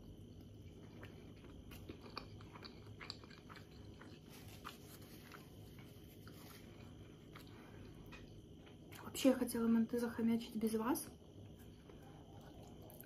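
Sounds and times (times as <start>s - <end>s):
faint chewing: 0.0s - 9.1s, 11.4s - 13.0s.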